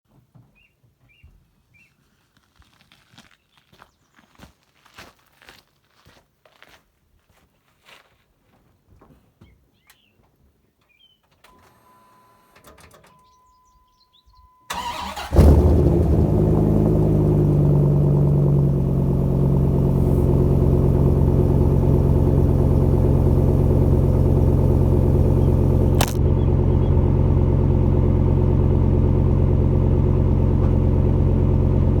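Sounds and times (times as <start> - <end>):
starter motor cranking: 14.7 - 15.8
car engine idling: 14.7 - 32.0
sharp click: 26.0 - 26.2.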